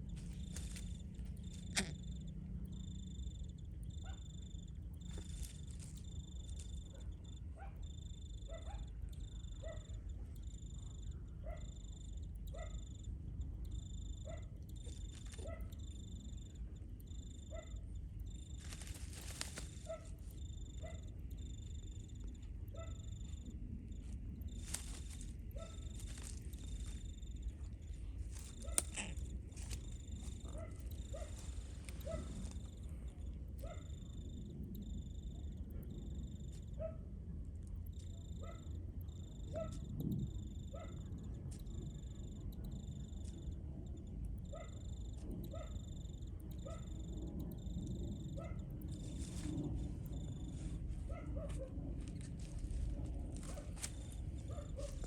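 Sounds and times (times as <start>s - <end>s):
steady low rumble: 0.0s - 55.0s
animal's short calls: 1.5s - 2.3s, 28.5s - 29.3s.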